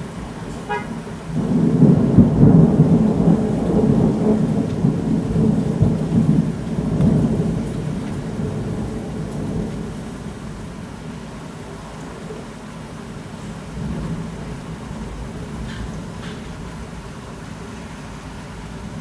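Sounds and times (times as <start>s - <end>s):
thunder rumbling: 0.0s - 11.0s
steady rain: 0.0s - 19.0s.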